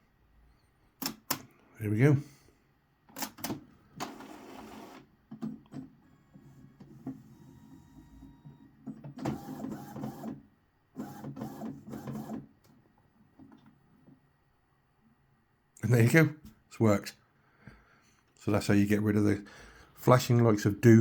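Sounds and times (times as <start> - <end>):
printer mechanical whirring and chattering: 3.2 - 10.4, 11.0 - 12.5
printer clicks: 8.9 - 10.3.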